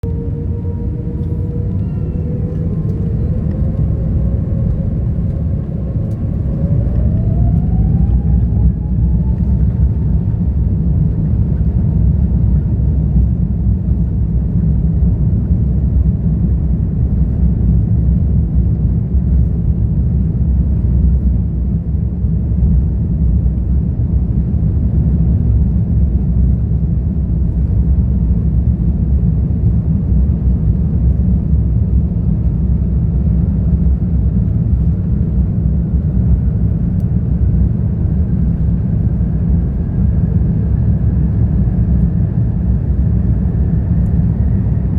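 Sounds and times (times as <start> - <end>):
engine whine rising in pitch: 0.0 - 13.3, 34.7 - 44.9
airliner engines rumbling: 0.0 - 44.9.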